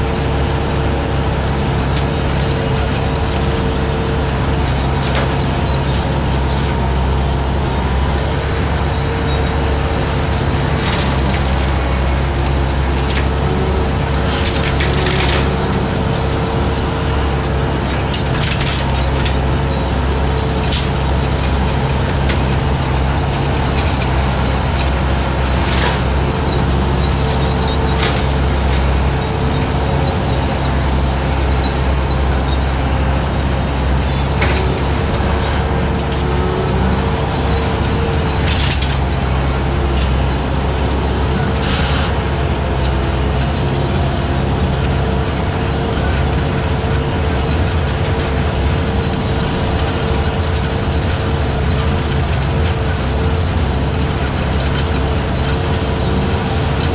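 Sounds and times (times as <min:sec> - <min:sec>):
brush cutter cutting brush: 0:00.0 - 0:42.8
skid steer engine running: 0:00.0 - 0:56.9.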